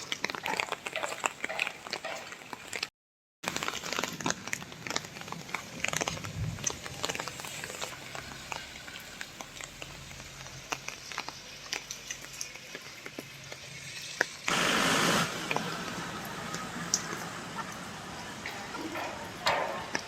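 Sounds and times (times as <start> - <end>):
drops ticking and dripping: 0.0 - 2.9, 3.5 - 20.0
rain pattering: 0.0 - 20.0
sudden rush of noise: 14.5 - 18.4.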